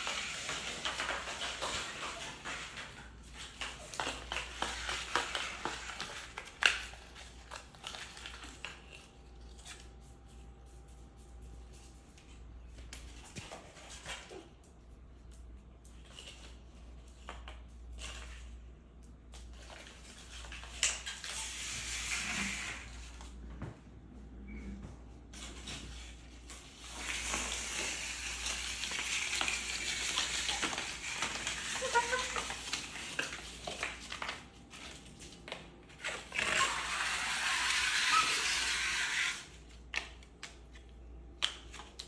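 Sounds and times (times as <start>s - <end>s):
cardboard crinkling: 26.6s - 36.8s.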